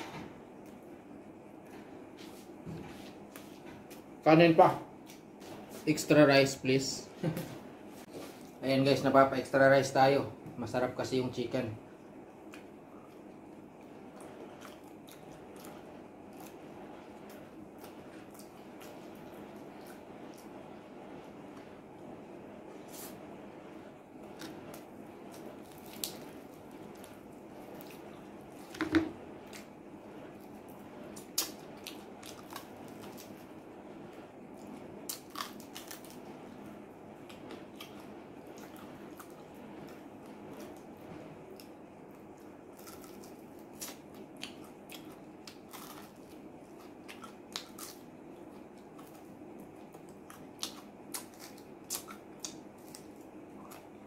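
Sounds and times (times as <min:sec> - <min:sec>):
man chewing crunchy food: 0:12.2 - 0:20.8, 0:24.1 - 0:33.7, 0:34.4 - 0:54.0.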